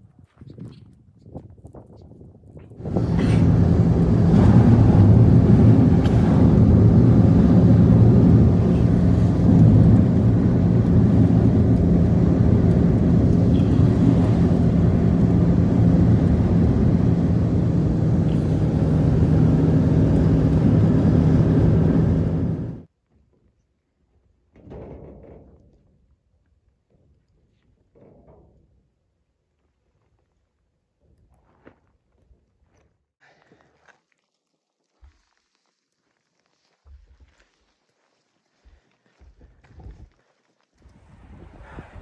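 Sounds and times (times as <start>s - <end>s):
engine droning: 2.8s - 22.9s.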